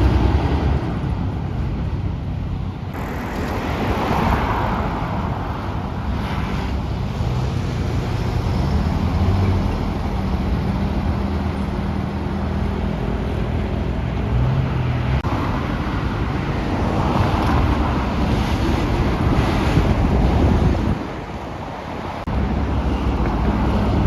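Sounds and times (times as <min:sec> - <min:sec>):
road and traffic noise: 0:00.0 - 0:24.0.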